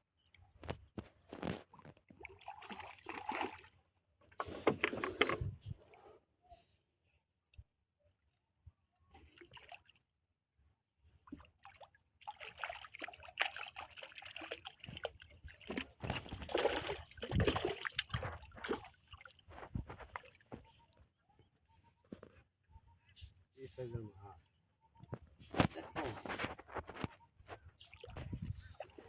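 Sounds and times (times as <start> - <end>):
water splashing and sloshing: 0.7 - 5.7, 9.2 - 10.0, 11.2 - 21.0, 27.8 - 29.0.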